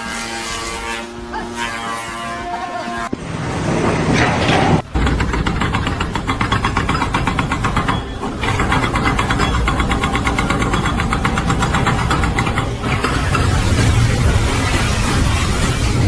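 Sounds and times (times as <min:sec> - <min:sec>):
engine pulsing rhythmically: 0:04.9 - 0:14.9.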